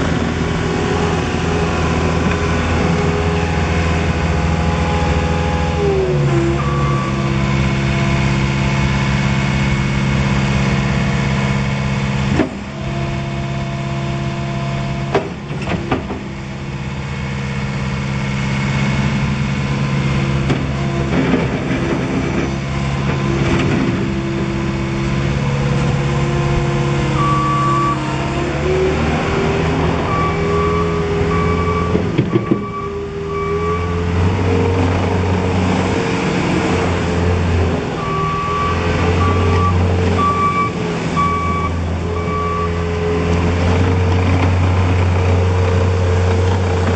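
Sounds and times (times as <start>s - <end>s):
diesel engine revving: 0.0s - 46.9s
backup alarm beeping: 27.1s - 28.0s, 30.1s - 34.0s, 38.0s - 42.8s.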